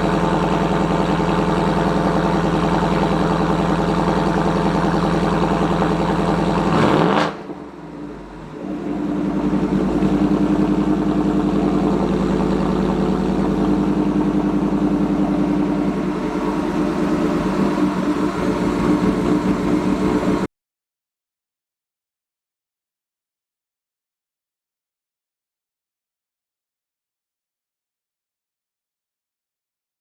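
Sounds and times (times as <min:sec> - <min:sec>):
car engine revving and idling: 0:00.0 - 0:20.5.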